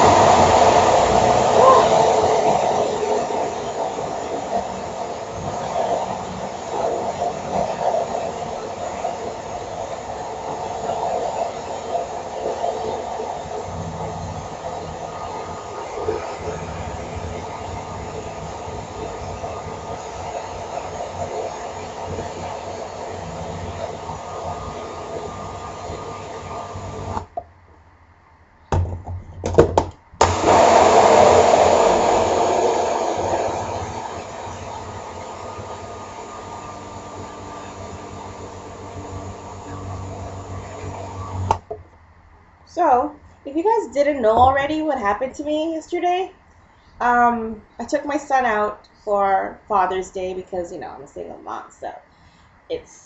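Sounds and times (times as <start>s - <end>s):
electric blender running: 0.0s - 27.3s, 30.2s - 41.7s
knocks and rattles: 28.7s - 30.1s.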